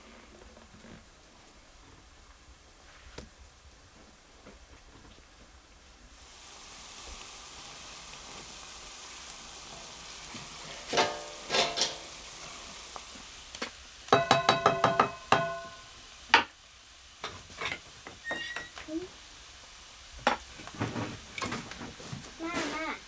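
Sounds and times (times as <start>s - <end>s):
food sizzling in a pan: 6.1s - 23.0s
utensil clinking while stirring: 9.7s - 12.8s, 14.1s - 15.9s
metal utensil striking pan: 10.6s - 12.6s, 14.1s - 16.5s.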